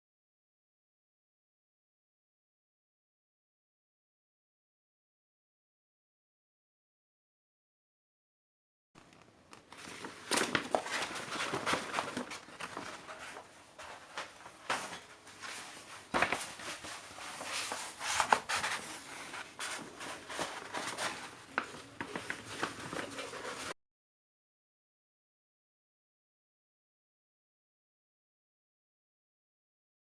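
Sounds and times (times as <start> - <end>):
packaging rustling and crinkling: 9.5 - 23.8.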